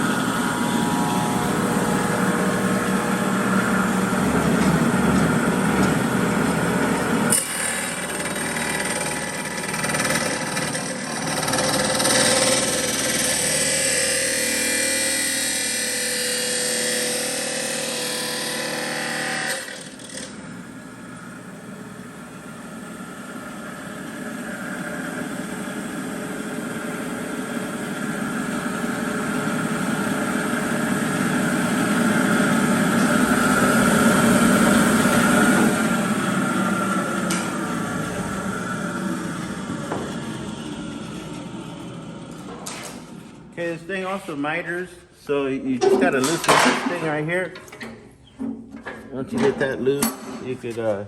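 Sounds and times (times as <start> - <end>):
chop saw cutting steel pipe: 7.3 - 20.4.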